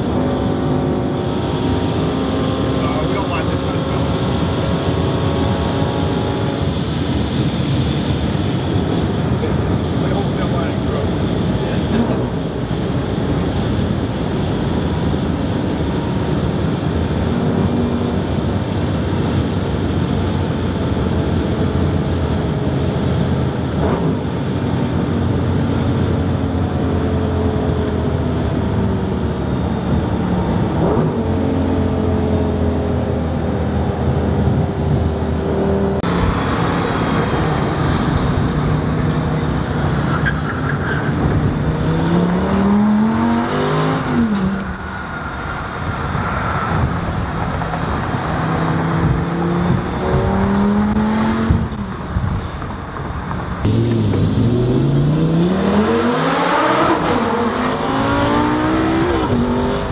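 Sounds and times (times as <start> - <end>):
car engine cruising: 0.0 - 59.9
road noise: 0.0 - 59.9.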